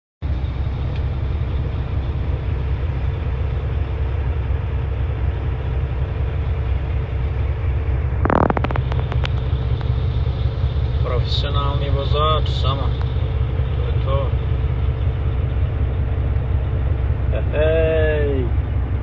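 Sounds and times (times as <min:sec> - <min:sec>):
truck diesel engine rumbling: 0:00.2 - 0:19.0
sharp clicks: 0:08.3 - 0:10.0.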